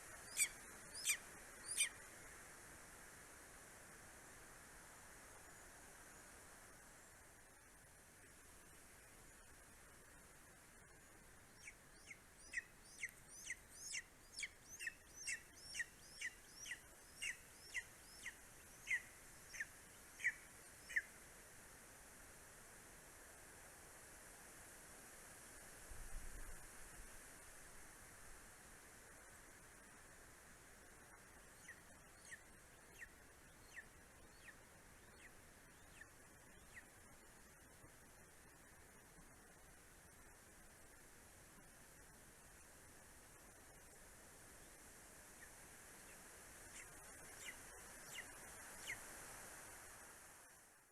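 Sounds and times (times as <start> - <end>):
faint steady hiss: 0.0 - 50.9
eagle yelping calls: 0.2 - 2.0, 11.6 - 21.1.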